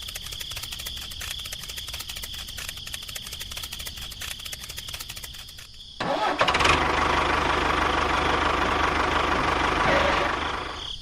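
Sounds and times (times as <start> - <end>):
insects chirring: 0.0 - 6.5, 7.5 - 11.0.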